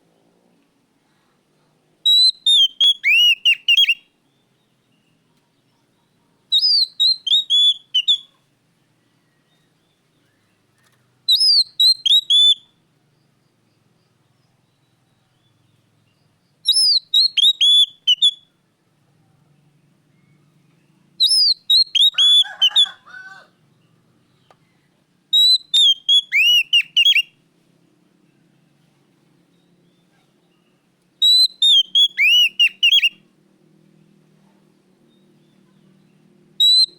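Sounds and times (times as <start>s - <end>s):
bird whistling song: 2.0s - 4.7s, 6.5s - 8.4s, 9.3s - 12.9s, 14.6s - 18.6s, 20.1s - 23.1s, 24.3s - 27.4s, 29.5s - 33.2s, 35.1s - 36.9s.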